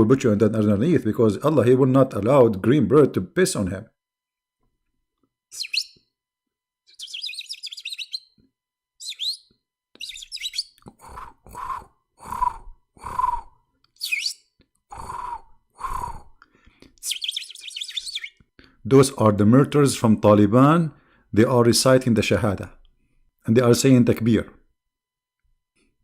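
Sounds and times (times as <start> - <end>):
lower bird calls: 5.5 - 6.0, 6.9 - 8.4, 9.0 - 16.3, 17.0 - 18.4
birds chirping and trilling: 5.6 - 6.0, 6.9 - 8.4, 9.0 - 10.8, 14.0 - 14.4, 17.0 - 18.4.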